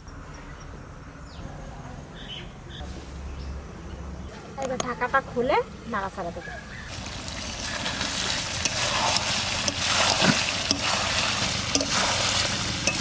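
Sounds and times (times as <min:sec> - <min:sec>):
food sizzling in oil: 0:06.9 - 0:13.0
ladle knocking on pan: 0:09.6 - 0:11.1, 0:11.7 - 0:12.2.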